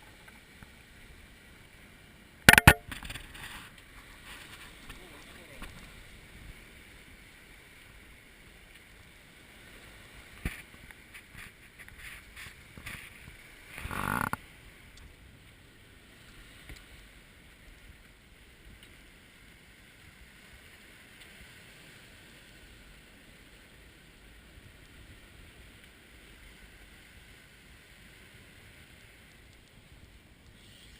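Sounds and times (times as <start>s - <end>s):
water noise: 0.0s - 30.9s
wind: 0.0s - 30.9s
sharp knock: 2.5s - 2.9s.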